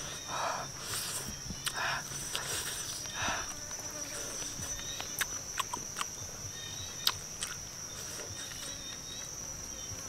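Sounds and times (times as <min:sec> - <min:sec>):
high insect buzz: 0:00.0 - 0:10.0
chewing and crunching meat: 0:04.4 - 0:06.2.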